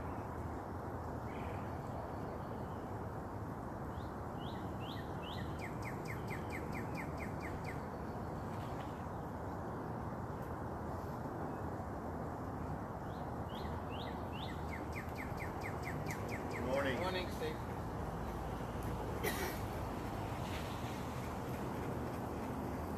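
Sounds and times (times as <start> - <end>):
steady background noise: 0.0 - 22.9
songbird calling: 3.9 - 9.0, 13.0 - 18.4.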